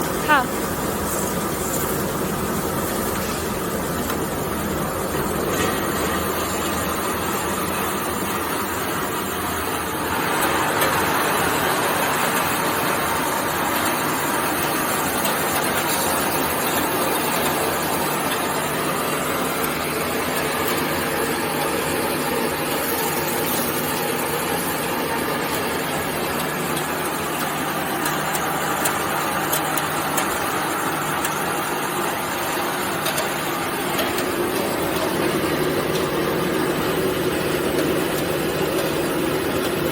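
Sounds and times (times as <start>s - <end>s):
rice milling machine running: 0.0s - 39.9s.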